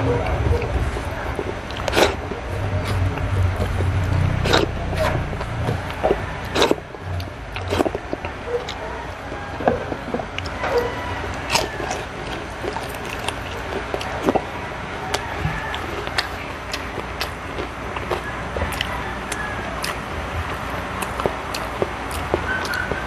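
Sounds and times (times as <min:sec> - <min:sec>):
person chewing: 0:00.0 - 0:23.0
steady low hum: 0:00.0 - 0:23.0
lip smacks: 0:00.1 - 0:23.0
wet mouth clicks: 0:01.4 - 0:08.8, 0:15.1 - 0:23.0.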